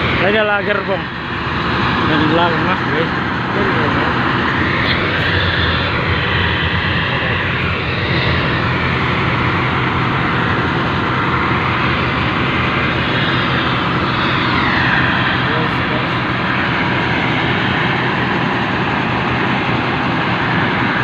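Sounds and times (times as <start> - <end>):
locomotive engine drone: 0.0 - 21.0
loud rushing running noise: 0.0 - 21.0.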